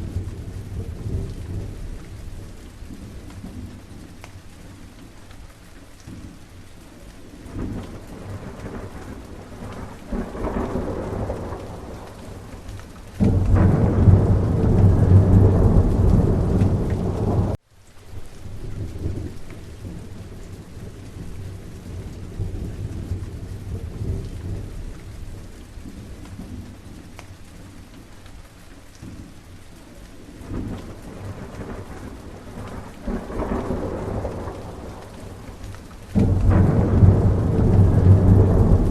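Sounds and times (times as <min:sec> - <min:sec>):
rolling thunder: 0:00.0 - 0:03.9, 0:07.4 - 0:17.6, 0:18.5 - 0:26.8, 0:30.4 - 0:38.9
steady rain falling: 0:00.0 - 0:38.9
loud thunderclap: 0:07.5 - 0:17.6, 0:30.4 - 0:38.9.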